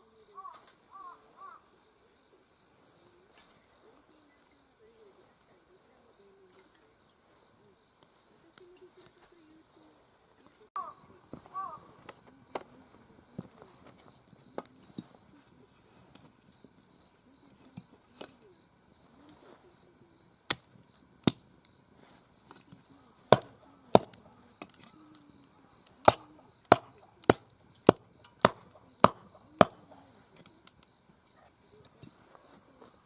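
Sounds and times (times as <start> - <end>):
firewood being chopped: 11.3 - 12.8, 13.4 - 15.2, 20.4 - 25.0, 25.8 - 30.8.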